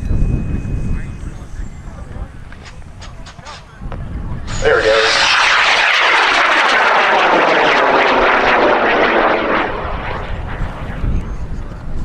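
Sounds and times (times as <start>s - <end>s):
rocket motor roaring: 4.5s - 11.2s.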